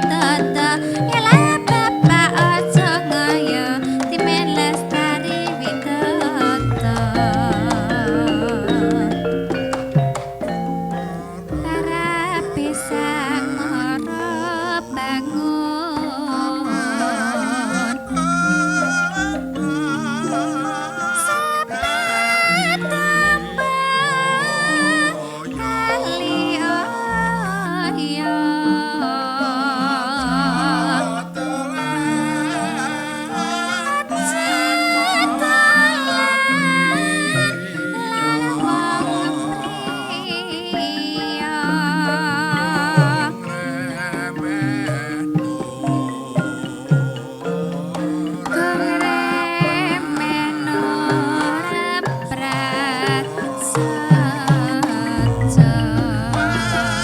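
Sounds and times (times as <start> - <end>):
hand drums striking: 0.0 - 28.2, 30.0 - 57.0
gamelan ensemble playing: 0.0 - 57.0
metallophones and gongs: 0.0 - 57.0
person singing with vibrato: 0.0 - 57.0
deep low notes: 6.6 - 12.2, 55.2 - 57.0.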